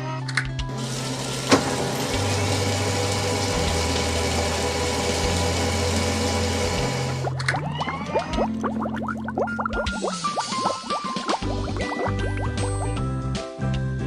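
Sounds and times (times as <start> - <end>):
background music: 0.0 - 14.0
engine running: 0.7 - 7.4.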